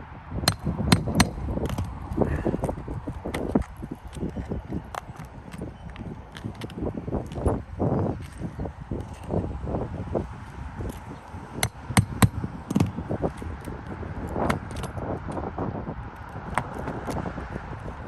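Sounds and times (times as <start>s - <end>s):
pry tool working nails loose: 0.5s - 1.9s
knocks and clicks on shingles: 0.5s - 9.5s, 10.2s - 15.5s, 16.2s - 18.0s.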